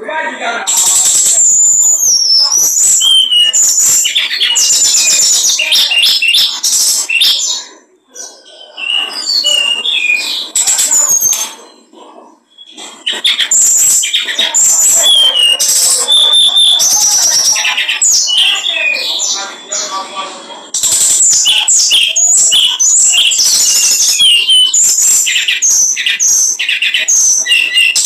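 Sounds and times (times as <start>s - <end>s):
small songbird singing: 0.7s - 28.0s.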